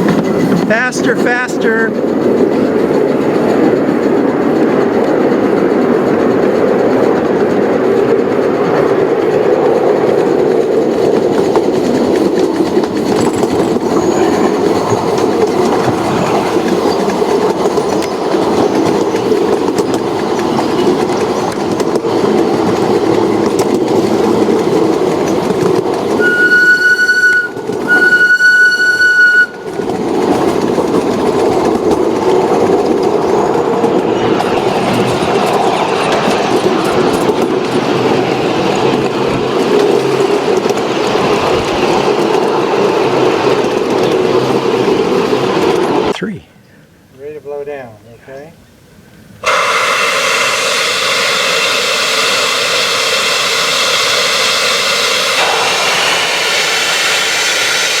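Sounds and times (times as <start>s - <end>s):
train running on track: 0.0s - 58.0s
high-pitched train whistle: 26.2s - 29.7s.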